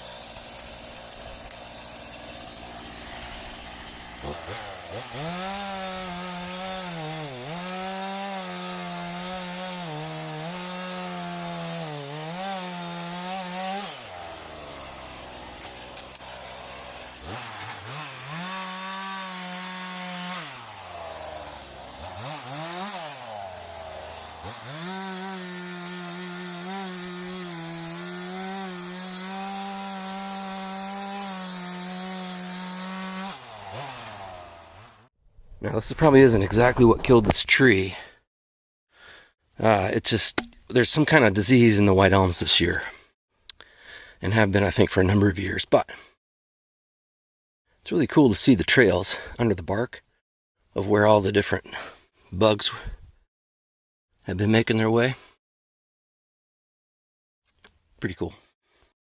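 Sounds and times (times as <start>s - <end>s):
chainsaw cutting wood: 0.0s - 35.1s, 35.9s - 37.5s, 40.4s - 40.6s.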